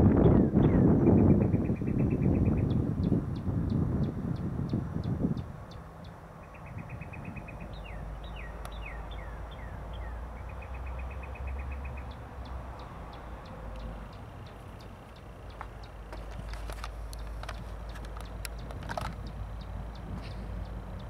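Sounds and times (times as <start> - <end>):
songbird trilling and whistling: 0.2 - 4.8, 5.4 - 16.6
diesel locomotive rumbling: 2.7 - 21.0
high ticking: 4.4 - 21.0.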